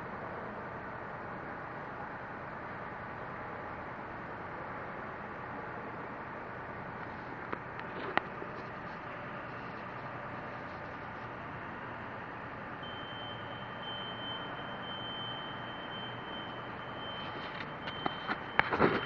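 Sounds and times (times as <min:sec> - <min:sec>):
thin high whine: 0:07.1 - 0:19.0.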